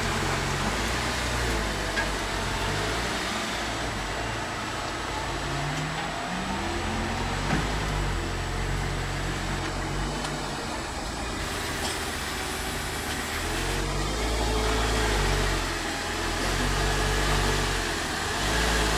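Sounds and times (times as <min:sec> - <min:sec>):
car engine at low revs: 0:00.0 - 0:18.9.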